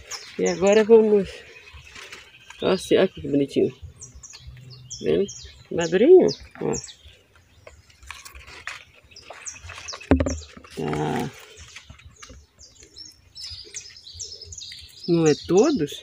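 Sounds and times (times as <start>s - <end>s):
small birds chirping: 0.0s - 16.0s
sharp knock: 10.1s - 10.4s.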